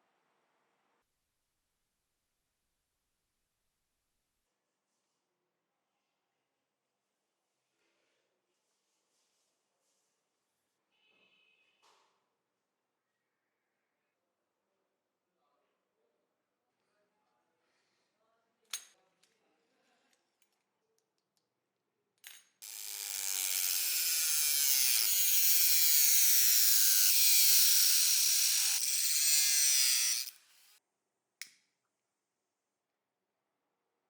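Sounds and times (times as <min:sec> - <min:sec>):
aerosol spray can hissing: 0:24.0 - 0:30.8.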